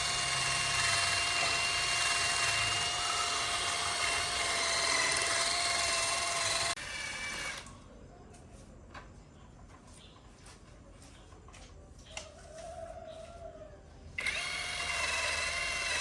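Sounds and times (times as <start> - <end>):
power tool whining: 0.0 - 7.7, 14.2 - 16.0.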